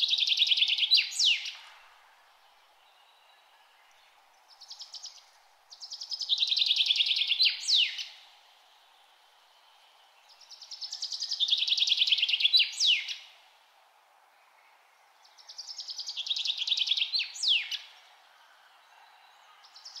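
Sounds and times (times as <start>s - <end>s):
faint background noise: 0.0s - 20.0s
songbird trilling: 5.9s - 8.2s.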